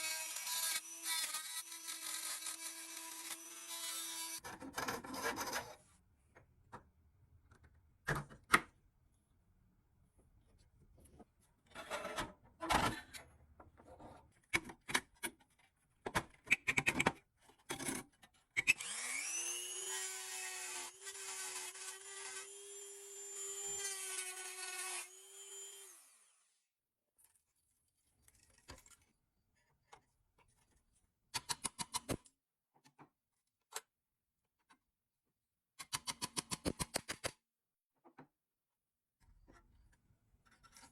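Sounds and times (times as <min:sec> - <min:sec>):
clicks and scraping of hand work: 0:11.0 - 0:18.8, 0:39.2 - 0:40.9
small electric power tool spinning: 0:18.7 - 0:26.3.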